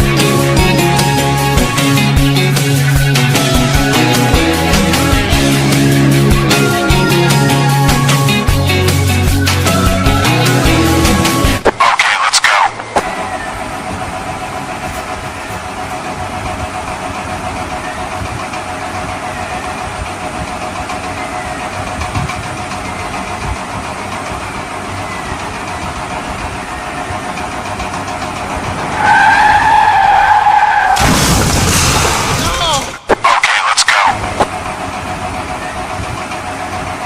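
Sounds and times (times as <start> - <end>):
car engine idling: 0.0 - 37.0
high wavering squeal: 13.0 - 15.9.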